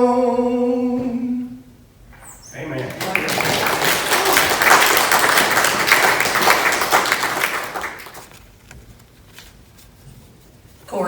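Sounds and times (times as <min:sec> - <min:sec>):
congregation applauding: 0:02.5 - 0:08.5.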